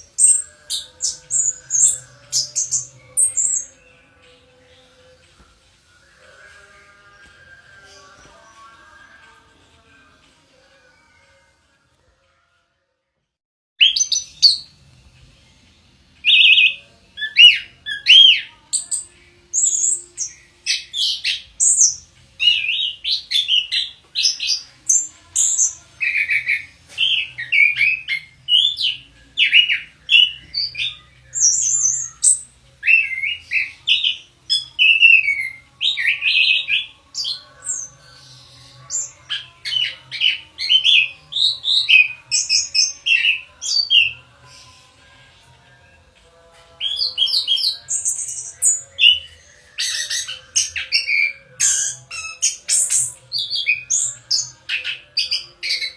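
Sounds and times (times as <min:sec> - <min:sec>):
thrush singing whistled notes: 0:00.0 - 0:04.9, 0:16.2 - 0:45.1, 0:46.8 - 0:55.9.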